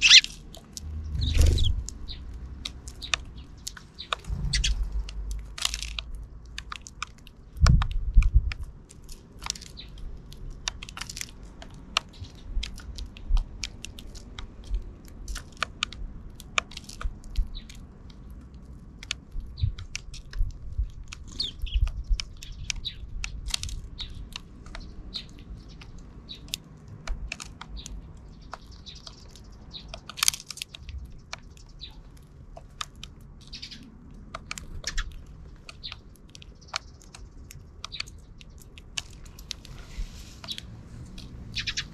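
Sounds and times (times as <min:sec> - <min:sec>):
sparrow chirps: 0:00.0 - 0:00.4, 0:01.0 - 0:05.3, 0:21.2 - 0:26.6, 0:27.7 - 0:30.0, 0:33.4 - 0:33.9, 0:34.6 - 0:40.7, 0:41.3 - 0:41.9
sparrows cracking seeds: 0:00.0 - 0:41.9.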